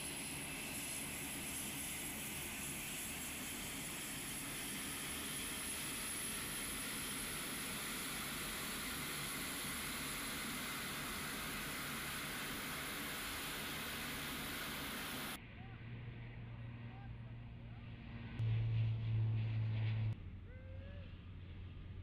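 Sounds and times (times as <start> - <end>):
high engine whine: 0.0 - 20.5
turboprop engines droning: 0.0 - 22.0.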